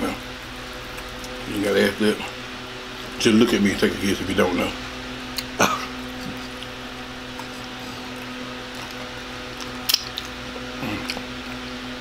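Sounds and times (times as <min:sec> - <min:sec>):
man chewing food: 0:00.4 - 0:01.5, 0:05.3 - 0:12.0.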